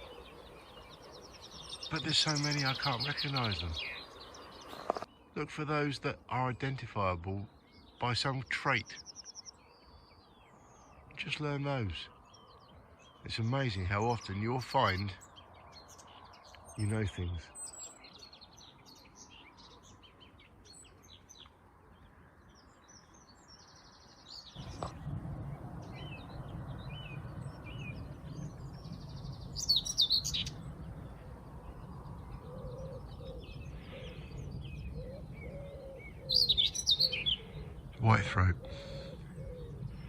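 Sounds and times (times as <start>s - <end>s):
scratchy bird song: 0.0s - 25.0s, 25.8s - 30.6s, 31.2s - 40.0s
birds chirping: 0.0s - 40.0s
low rumble: 24.6s - 35.5s.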